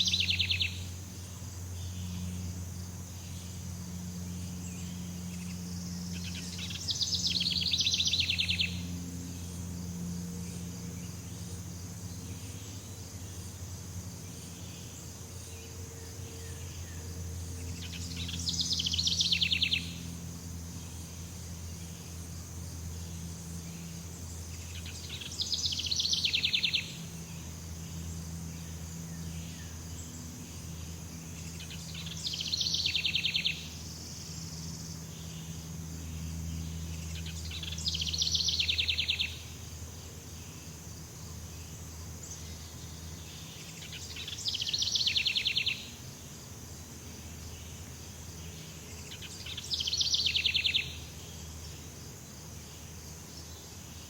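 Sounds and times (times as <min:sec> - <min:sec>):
faint low hum: 0:00.0 - 0:54.0.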